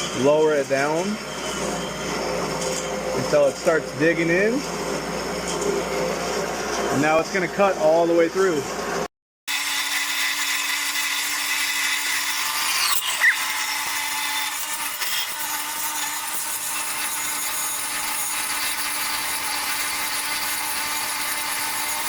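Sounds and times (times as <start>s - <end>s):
bandsaw blade cutting metal: 9.5s - 22.0s.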